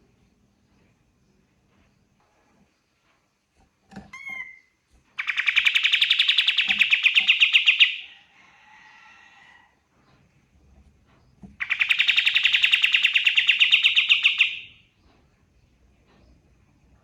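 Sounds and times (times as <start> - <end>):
bird singing rapid trill: 4.2 - 8.1, 11.6 - 14.8.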